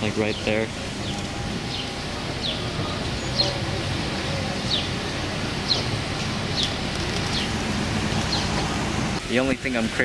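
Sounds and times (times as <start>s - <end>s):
steady outdoor noise: 0.0s - 10.0s
street traffic passing: 0.0s - 10.0s
bird chirping: 0.2s - 3.6s, 5.6s - 9.2s.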